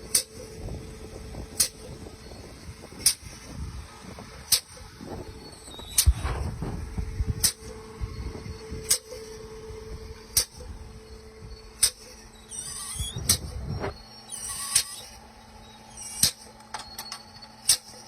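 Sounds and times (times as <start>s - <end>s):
drilling rig machinery rumbling: 0.0s - 18.0s
sharp repeating click: 8.8s - 9.2s, 10.3s - 10.7s, 11.8s - 13.6s, 14.3s - 15.2s, 16.0s - 16.6s.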